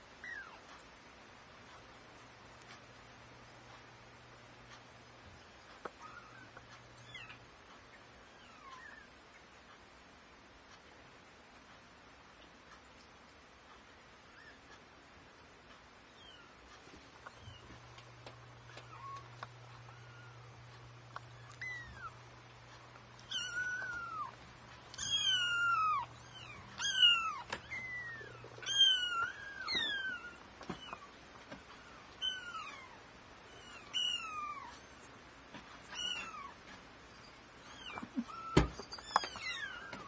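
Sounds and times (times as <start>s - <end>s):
kittens mewing: 17.3s - 31.2s, 37.6s - 40.0s.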